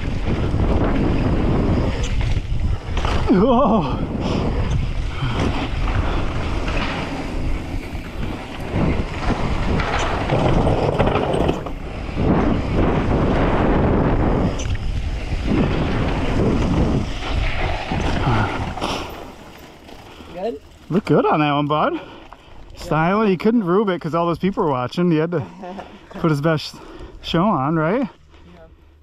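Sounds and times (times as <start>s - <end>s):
wind rushing over microphone: 0.0s - 19.4s.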